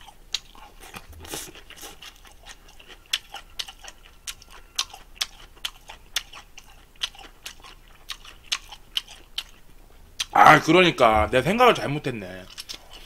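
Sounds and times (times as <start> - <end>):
person chewing food: 0.0 - 10.4, 12.4 - 13.0
wet mouth clicks and smacks: 12.5 - 13.0.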